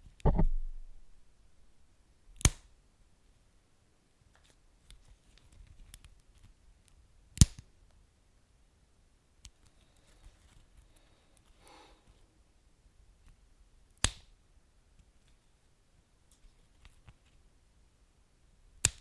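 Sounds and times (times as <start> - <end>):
sharp loud pops: 0.2 - 1.2.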